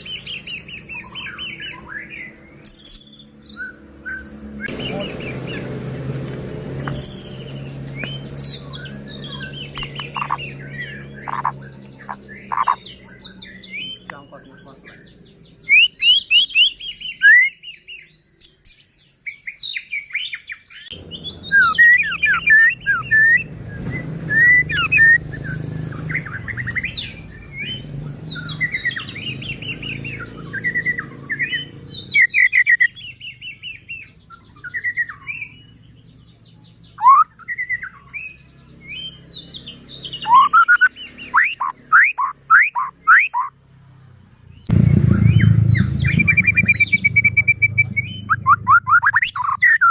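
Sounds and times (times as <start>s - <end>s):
songbird whistling and trilling: 0.0s - 14.1s, 14.9s - 43.5s, 45.3s - 49.9s
low steady rumble: 44.6s - 49.8s.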